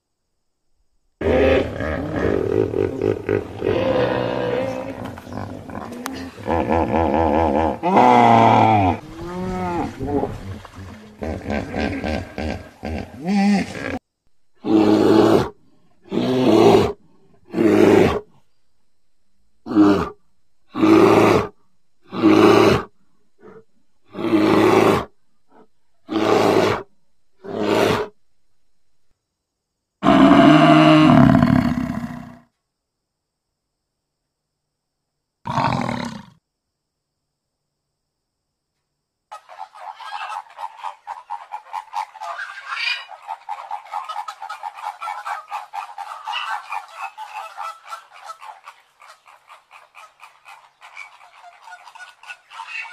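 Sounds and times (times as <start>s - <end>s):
bear roaring: 1.2s - 14.0s, 14.6s - 18.3s, 19.6s - 28.2s, 30.0s - 32.4s, 35.5s - 36.4s.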